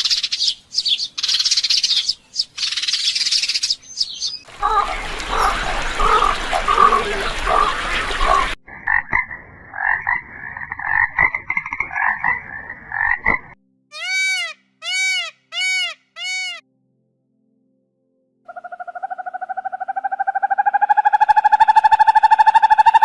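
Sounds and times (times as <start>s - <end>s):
noisy chirping: 4.5s - 8.6s
frogs croaking in pulsing bursts: 4.5s - 13.6s, 18.5s - 23.0s
frog calls rising and falling: 18.5s - 23.0s.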